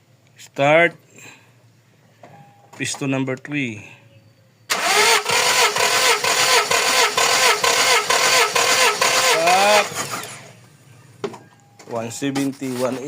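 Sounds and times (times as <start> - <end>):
starter motor cranking engine: 4.7 - 10.6.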